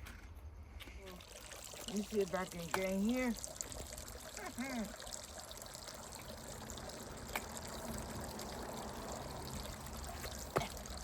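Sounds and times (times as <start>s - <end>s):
running water: 1.0s - 11.0s.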